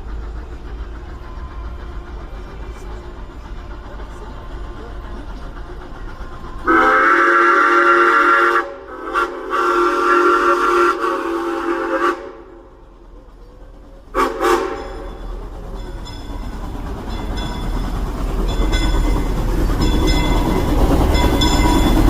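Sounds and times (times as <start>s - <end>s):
train running rumble: 0.0s - 22.0s
steam locomotive chime whistle: 6.3s - 12.7s, 14.1s - 16.5s.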